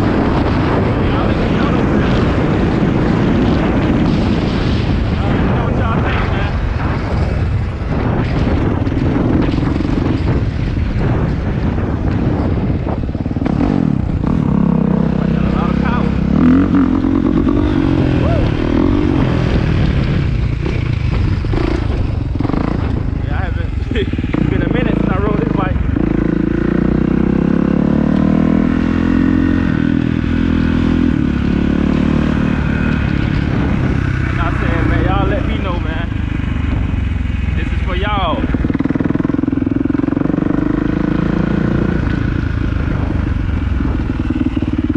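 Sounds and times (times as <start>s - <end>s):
motorcycle engine revving loudly: 0.0s - 44.9s
motorcycle engine idling: 33.3s - 44.9s.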